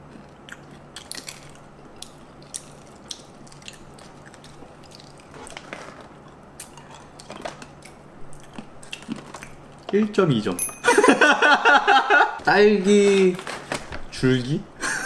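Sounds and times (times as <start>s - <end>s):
coated almonds being chewed: 0.0s - 5.6s, 6.2s - 10.0s
faint steady hum: 0.0s - 15.0s.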